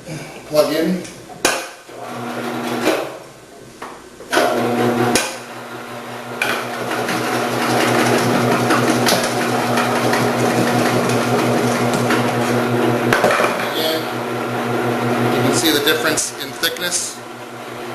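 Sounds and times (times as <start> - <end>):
machine motor humming: 4.5 - 17.9.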